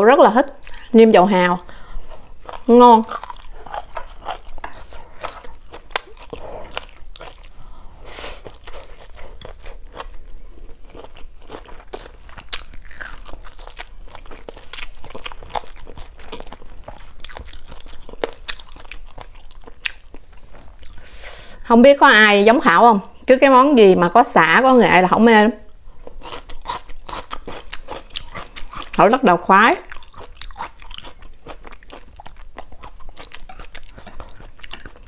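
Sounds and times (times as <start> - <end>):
crunchy chewing: 2.0 - 21.2, 25.7 - 29.0, 29.8 - 35.0.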